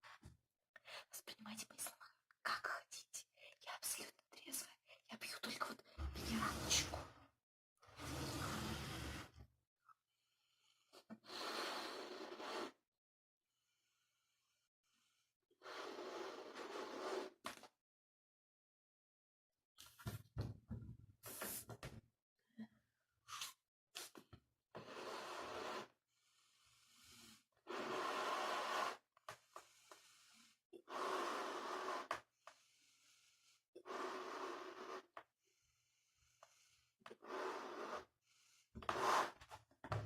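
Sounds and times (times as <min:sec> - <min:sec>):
breath puffs into balloon: 0:11.2 - 0:12.8, 0:15.6 - 0:17.5, 0:23.3 - 0:35.2, 0:36.2 - 0:39.5.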